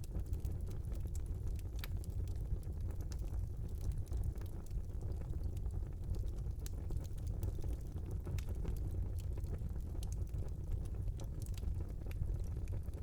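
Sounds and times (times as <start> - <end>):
wood fire crackling: 3.1 - 13.0.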